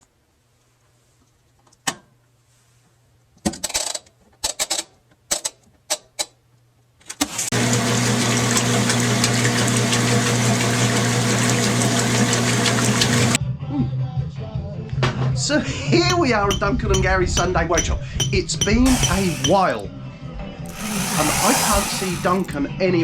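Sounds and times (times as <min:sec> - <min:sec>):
engine cranking: 0:18.9 - 0:19.8, 0:20.7 - 0:22.6.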